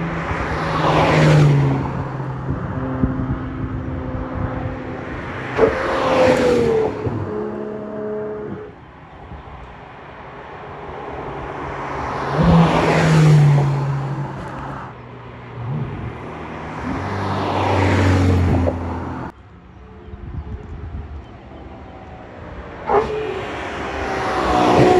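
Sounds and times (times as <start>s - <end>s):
sports cars driving past: 0.0s - 20.0s, 20.9s - 24.9s.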